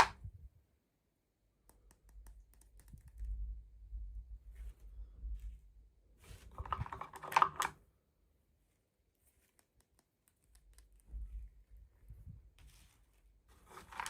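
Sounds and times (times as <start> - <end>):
packaging rustling and crinkling: 6.2 - 7.8, 12.6 - 14.0
plastic toy parts clicking: 6.7 - 7.8.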